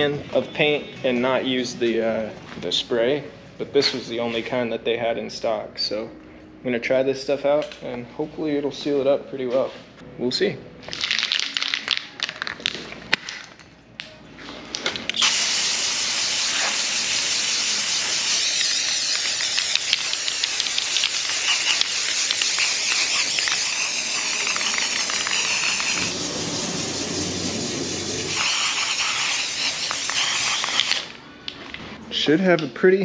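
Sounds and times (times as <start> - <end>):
spray can hissing: 15.2 - 31.2.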